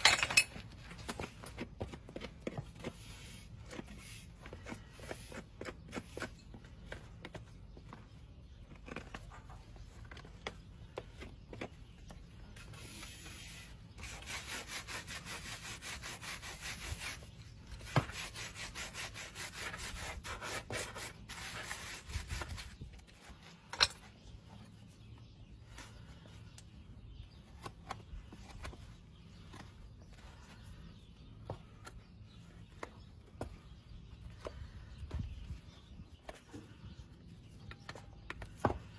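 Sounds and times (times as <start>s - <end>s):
rasp filing a hoof: 12.6s - 22.8s.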